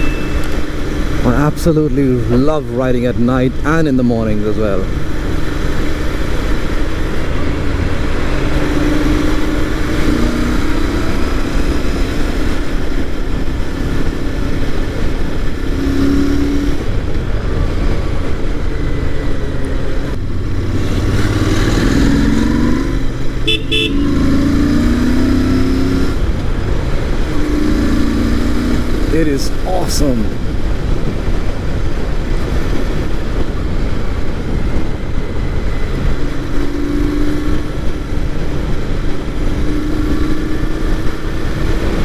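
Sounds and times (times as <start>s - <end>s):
vehicle horn beeping: 0.0s - 0.9s, 23.4s - 24.6s
motorcycle engine running: 4.8s - 29.2s.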